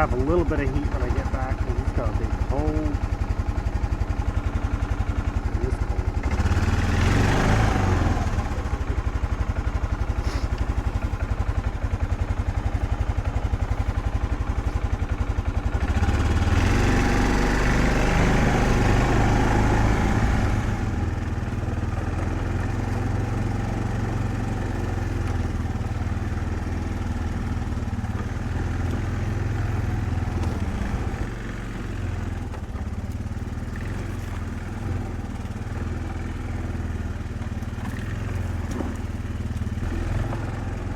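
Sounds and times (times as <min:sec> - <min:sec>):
engine running with low rumble: 0:00.0 - 0:40.9.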